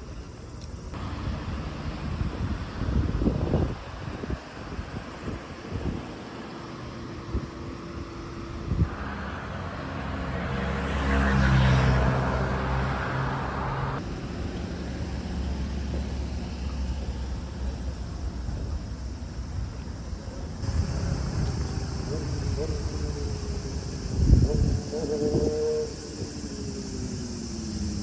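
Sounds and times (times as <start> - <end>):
traffic background: 0.0 - 28.0
vehicle passing by: 8.7 - 14.0.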